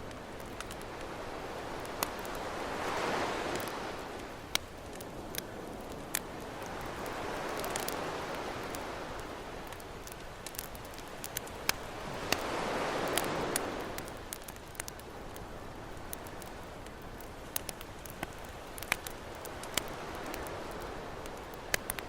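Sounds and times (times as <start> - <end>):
campfire crackling: 0.0 - 22.0
ocean waves washing onto beach: 0.0 - 22.0.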